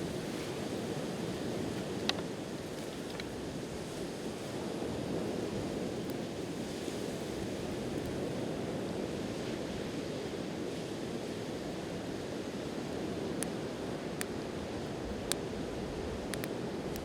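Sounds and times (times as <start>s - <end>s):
wood fire crackles: 5.1s - 8.4s.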